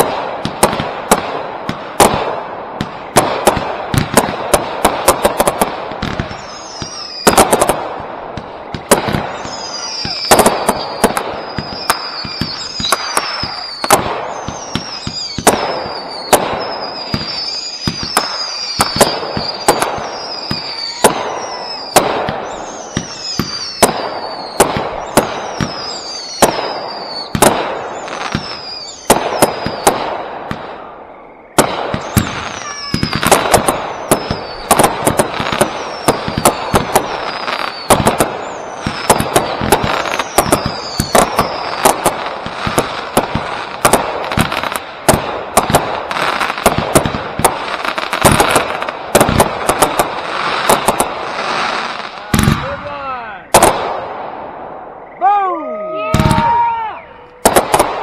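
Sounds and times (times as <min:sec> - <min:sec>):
fireworks popping and bursting: 0:00.0 - 0:55.3, 0:56.0 - 0:58.0
falling whistling tone: 0:06.3 - 0:07.4, 0:09.3 - 0:27.4, 0:28.0 - 0:29.9, 0:31.0 - 0:34.7, 0:35.6 - 0:39.2, 0:55.0 - 0:57.5.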